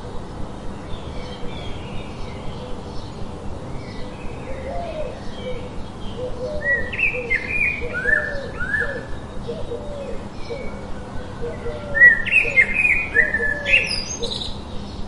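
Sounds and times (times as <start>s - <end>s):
birds chirping and singing: 0.6s - 15.0s
lower bird call: 3.9s - 14.6s.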